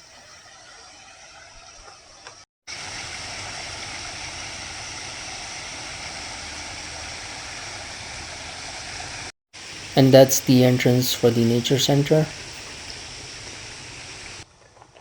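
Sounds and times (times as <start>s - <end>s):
small waterfall splashing: 2.7s - 10.0s, 11.9s - 14.4s.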